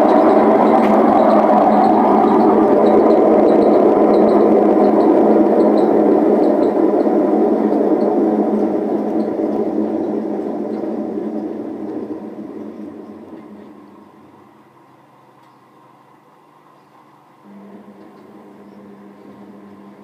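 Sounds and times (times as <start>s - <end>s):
washing machine drum spinning: 0.0s - 14.7s.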